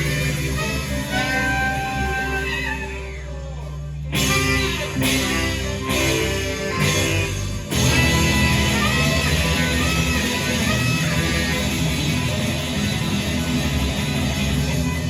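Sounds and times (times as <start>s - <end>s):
heavy accented band hits: 0.0s - 3.2s, 4.1s - 15.0s
rock band playing: 0.0s - 15.0s.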